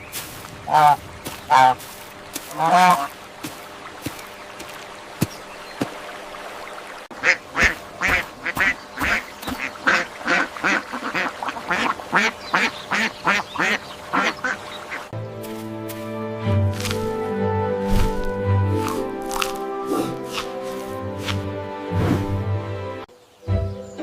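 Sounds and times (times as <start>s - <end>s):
ducks quacking: 0.2s - 4.2s, 7.1s - 15.2s.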